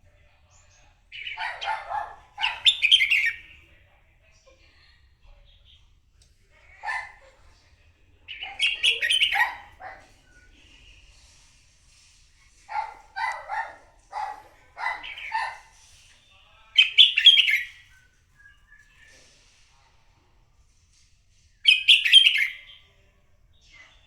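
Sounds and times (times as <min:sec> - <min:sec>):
bird singing varied phrases: 0:01.1 - 0:03.6, 0:08.3 - 0:09.8, 0:14.8 - 0:15.7, 0:16.8 - 0:19.1, 0:21.7 - 0:22.9.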